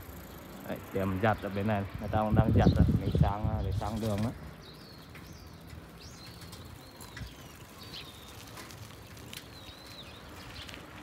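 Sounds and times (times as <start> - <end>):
small birds whistling: 2.5 - 10.8.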